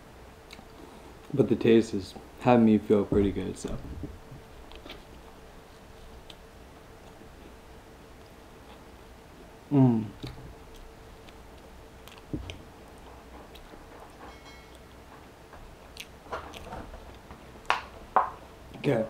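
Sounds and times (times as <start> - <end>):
dull thump: 3.1 - 4.2
person humming mmm: 9.7 - 10.4
wet mouth chewing clicks: 10.1 - 13.8, 15.9 - 16.7.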